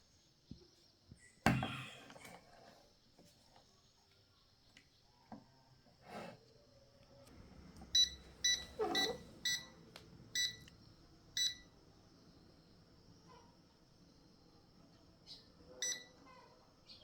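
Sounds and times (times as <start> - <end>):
short electronic beeps: 8.0 - 9.7.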